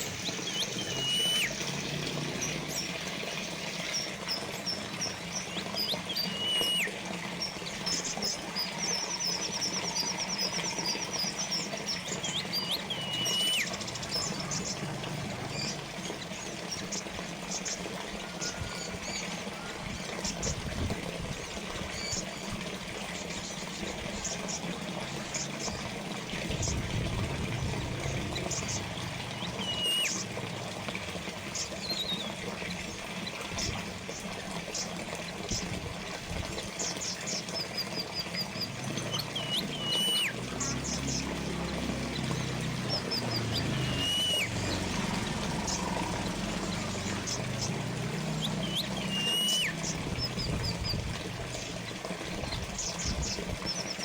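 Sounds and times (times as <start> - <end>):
whistled calls dipping in pitch: 0.0 - 20.6, 26.5 - 30.4, 31.5 - 32.4, 36.8 - 54.0
birds chirping: 0.0 - 54.0
fountain water trickling: 0.0 - 54.0.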